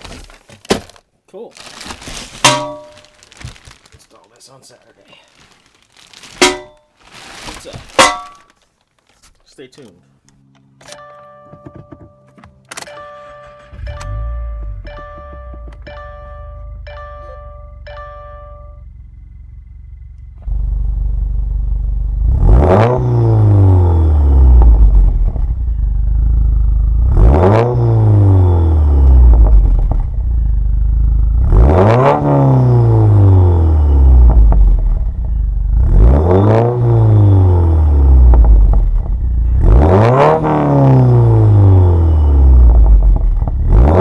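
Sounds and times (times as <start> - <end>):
car engine idling and revving: 13.2 - 44.0.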